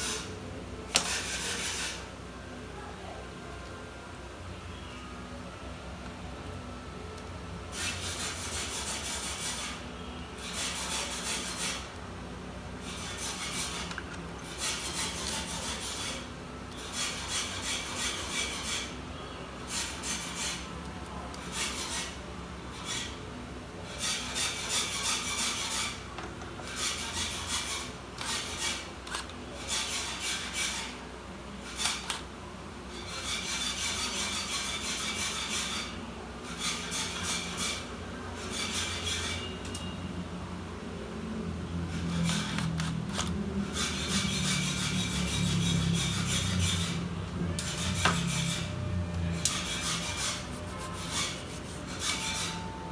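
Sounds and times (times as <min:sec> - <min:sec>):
scraping strokes on a laptop: 0:00.0 - 0:00.3, 0:00.9 - 0:02.2, 0:07.7 - 0:12.0, 0:12.7 - 0:23.2, 0:23.8 - 0:39.8, 0:41.8 - 0:52.9.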